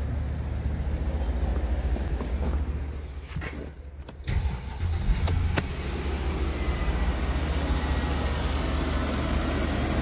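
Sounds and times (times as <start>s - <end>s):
car engine idling: 4.0s - 10.0s.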